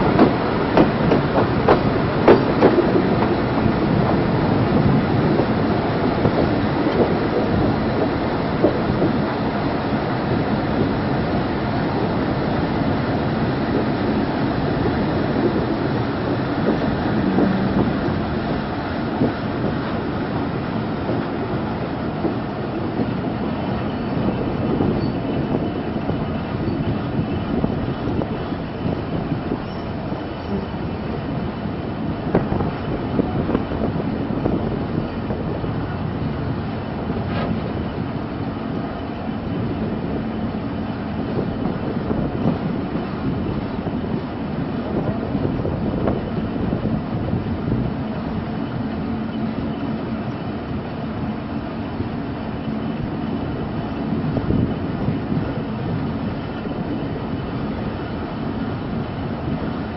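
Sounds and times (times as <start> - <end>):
rattling clatter: 0.0 - 4.3
steel wheels rumbling on rails: 0.0 - 59.9.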